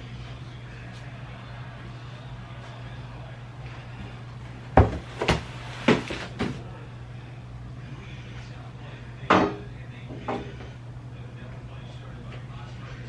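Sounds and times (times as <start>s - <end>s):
steady low hum: 0.0s - 13.0s
household knocks and clunks: 4.8s - 6.6s.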